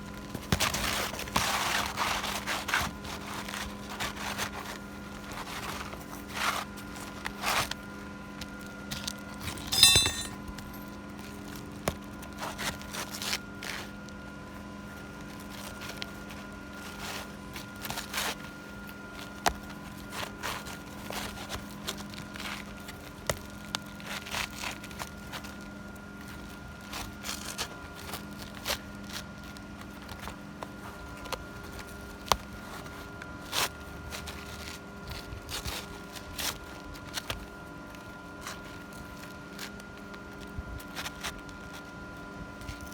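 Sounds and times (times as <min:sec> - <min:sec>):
sharp ringing clink: 0:09.5 - 0:10.4.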